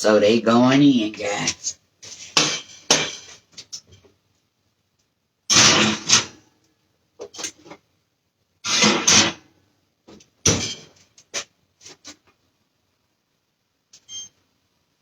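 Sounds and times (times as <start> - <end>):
metal pan scraping and clattering: 2.1 - 3.5, 5.5 - 6.4, 8.7 - 9.4.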